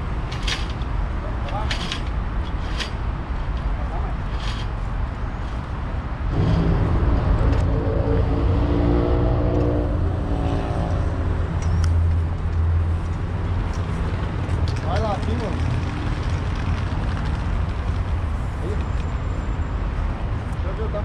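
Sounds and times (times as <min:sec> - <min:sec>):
steady low rumble: 0:00.0 - 0:18.6.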